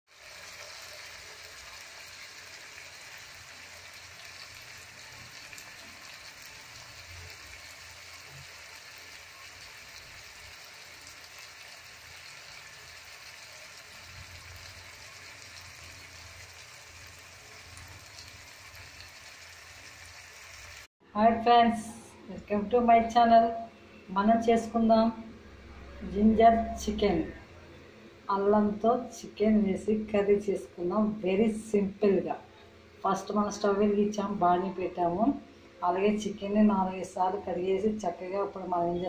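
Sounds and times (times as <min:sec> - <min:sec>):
curry sizzling in a metal pot: 0:00.1 - 0:20.9.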